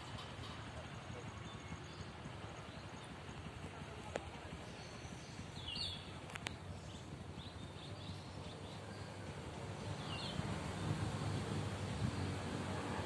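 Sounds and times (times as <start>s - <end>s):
birds chirping: 4.1s - 10.8s.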